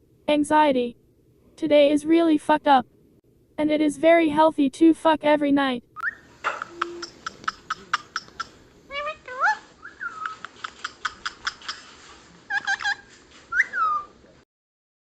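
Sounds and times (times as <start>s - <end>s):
bird whistling sliding notes: 6.0s - 8.4s, 9.8s - 11.8s, 13.5s - 14.1s
bird calls with sharp clicks: 6.0s - 8.6s, 10.0s - 11.9s.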